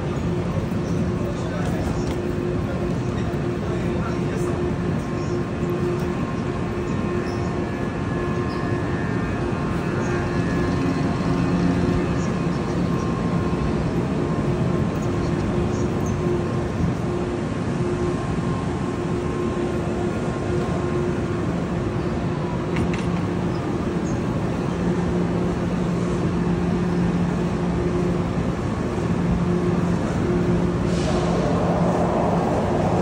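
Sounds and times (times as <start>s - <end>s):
train equipment hum: 0.0s - 33.0s
even rushing noise: 28.8s - 33.0s.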